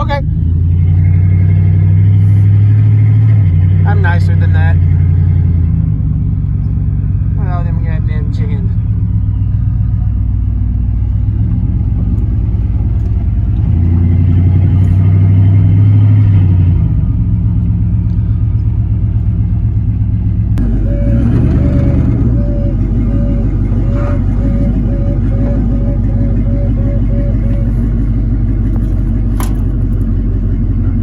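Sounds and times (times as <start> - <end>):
pickup truck engine rumbling: 0.0 - 31.0
short high warning beeps: 20.7 - 28.2.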